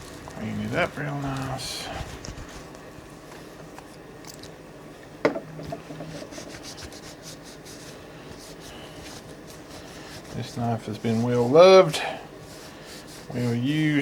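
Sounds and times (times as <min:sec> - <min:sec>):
cloth wiping a knife: 0:06.0 - 0:14.0.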